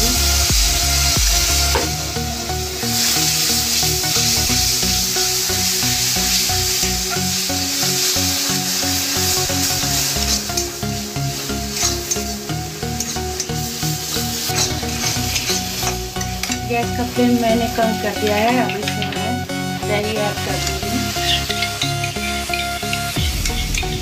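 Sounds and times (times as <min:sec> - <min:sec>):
paste sizzling in a pan: 0:00.0 - 0:24.0
metal spatula scraping a pan: 0:11.7 - 0:16.6, 0:20.6 - 0:24.0.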